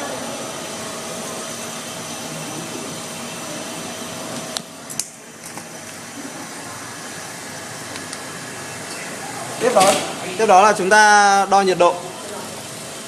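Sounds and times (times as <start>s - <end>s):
hvac fan rushing air: 0.0s - 13.0s.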